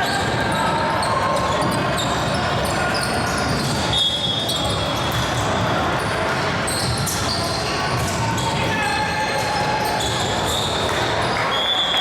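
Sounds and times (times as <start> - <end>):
spectators' voices: 0.0 - 12.0
sneakers squeaking on court: 0.8 - 8.6.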